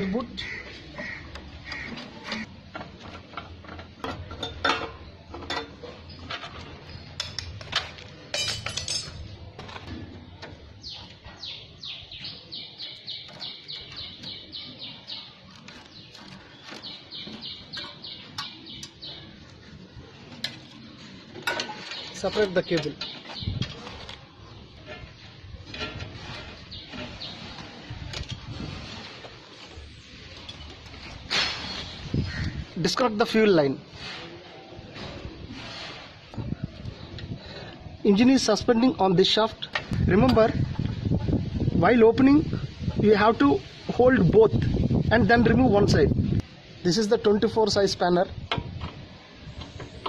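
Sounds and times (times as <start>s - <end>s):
bird calls: 0.0s - 2.6s, 10.8s - 19.8s
tools clinking on metal parts: 7.2s - 9.4s, 21.4s - 23.8s
ringing metallic clatter: 8.3s - 9.3s.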